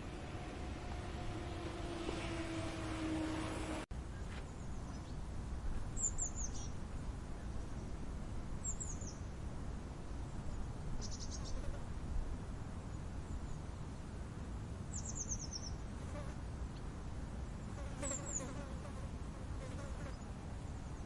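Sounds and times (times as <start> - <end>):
low wind rumble: 0.0 - 17.8
small bird high calls: 11.0 - 11.6.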